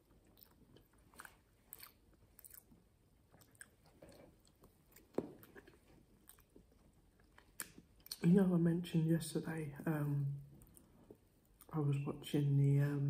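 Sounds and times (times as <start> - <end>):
faint chewing: 0.0 - 8.4, 10.5 - 11.8.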